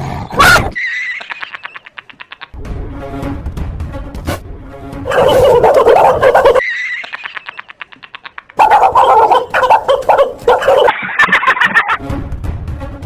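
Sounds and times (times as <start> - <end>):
dog barking frantically: 5.1 - 6.6, 8.6 - 11.7.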